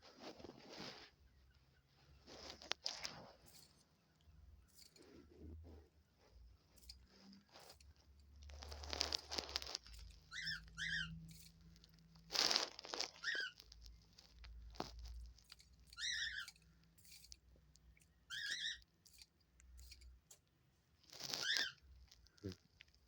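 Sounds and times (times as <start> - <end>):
paper crinkling and rustling: 2.2 - 3.8, 7.1 - 16.5, 21.0 - 23.0
bird chirping: 6.0 - 12.4, 13.0 - 20.4, 21.1 - 22.5.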